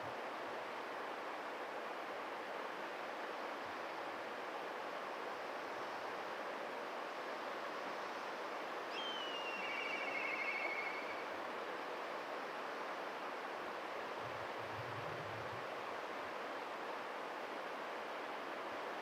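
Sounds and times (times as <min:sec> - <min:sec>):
steady hiss: 0:00.0 - 0:19.0
kite whistling call: 0:08.9 - 0:11.3.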